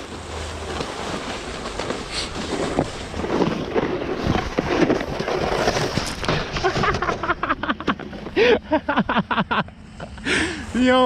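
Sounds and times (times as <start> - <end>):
crackling clicks of snow: 0.0 - 7.9
snowboard scraping over hard snow: 0.0 - 8.6.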